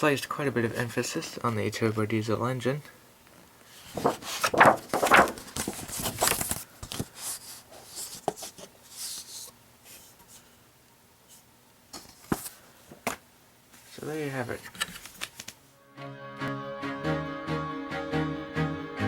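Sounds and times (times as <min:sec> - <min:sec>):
paper pages rustling: 0:03.6 - 0:10.4, 0:12.0 - 0:12.6, 0:13.7 - 0:15.6.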